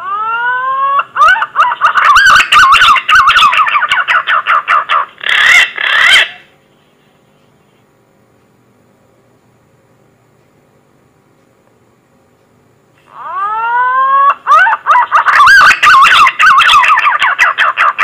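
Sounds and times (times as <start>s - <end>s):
pigeon call whistles: 13.2s - 17.8s.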